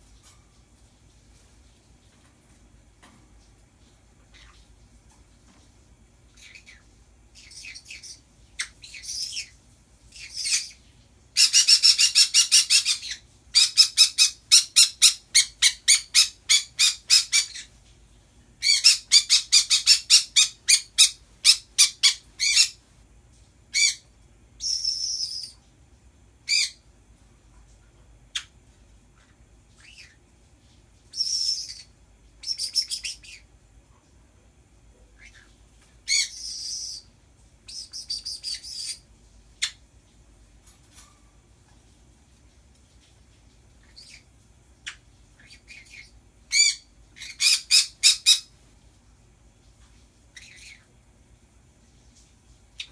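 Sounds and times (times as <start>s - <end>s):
birds screeching and chirping: 18.6s - 22.8s.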